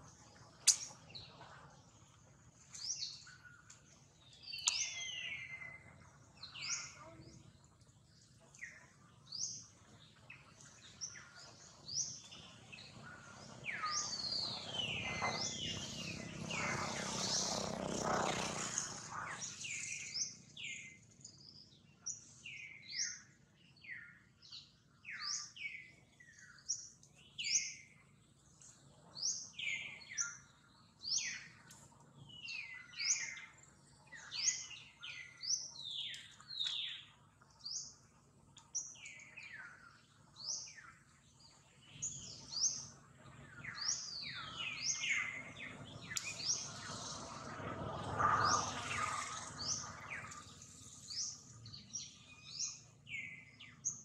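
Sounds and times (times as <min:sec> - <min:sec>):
birds chirping: 0:02.8 - 0:27.9, 0:38.6 - 0:54.0.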